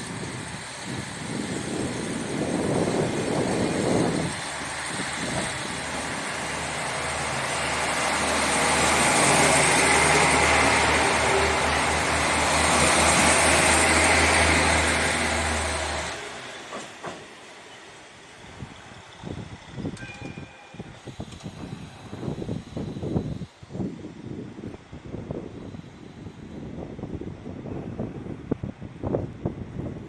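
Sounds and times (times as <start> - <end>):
diesel train engine drone: 0.0 - 30.0.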